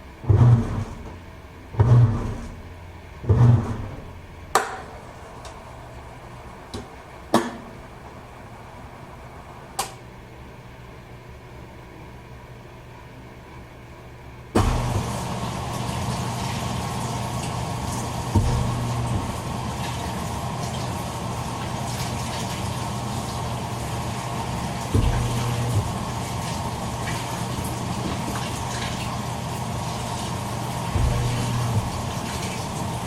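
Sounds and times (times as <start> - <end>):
short low hum with clunk: 0.0 - 5.6, 14.5 - 16.5, 17.9 - 20.3, 24.8 - 29.2, 30.9 - 33.0
washing machine filling with water: 0.1 - 1.1, 1.8 - 2.6, 3.2 - 4.1, 4.8 - 9.8, 14.6 - 33.0.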